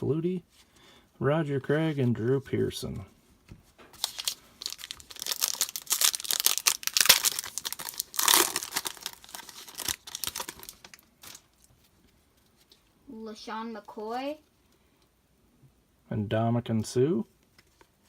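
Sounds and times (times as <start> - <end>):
foil wrapper tearing and crinkling: 4.0 - 11.5.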